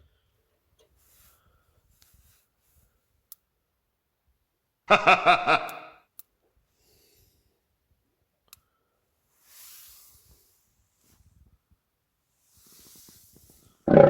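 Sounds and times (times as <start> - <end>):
faint sharp clicks: 8.5 - 8.7
soft hiss: 8.6 - 13.8.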